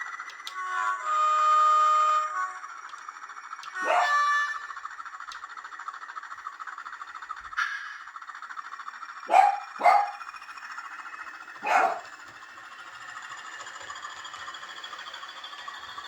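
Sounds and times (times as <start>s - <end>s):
diesel engine sound from small speaker: 0.0s - 16.0s
dog barking: 3.8s - 4.2s, 9.3s - 10.2s, 11.6s - 12.2s.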